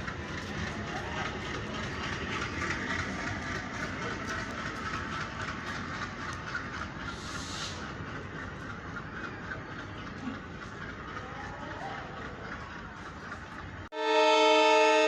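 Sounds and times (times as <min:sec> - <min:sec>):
train wheels rumbling on rails: 0:00.0 - 0:15.0
brief hiss: 0:07.1 - 0:07.8.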